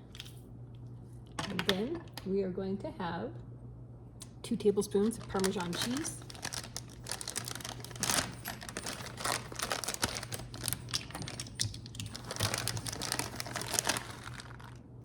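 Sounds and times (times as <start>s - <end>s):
steady low hum: 0.0s - 15.0s
kitchen clicking and rustling: 5.0s - 14.8s.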